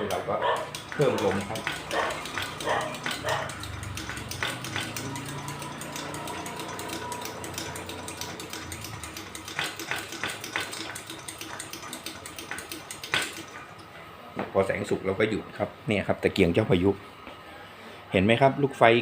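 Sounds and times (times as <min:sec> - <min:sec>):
hand air pump clicking: 0:00.0 - 0:13.9.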